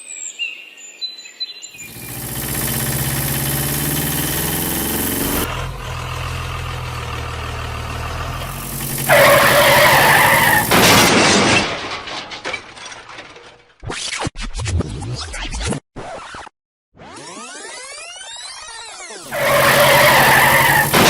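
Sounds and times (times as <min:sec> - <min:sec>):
vehicle engine running: 0:01.8 - 0:11.1, 0:19.3 - 0:21.0
loud squeal: 0:08.4 - 0:11.1, 0:19.3 - 0:21.0.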